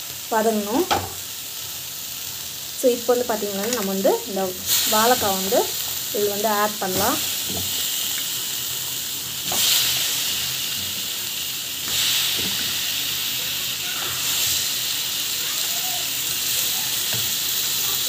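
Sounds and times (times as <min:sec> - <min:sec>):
slices sizzling in hot oil: 0:00.0 - 0:18.0.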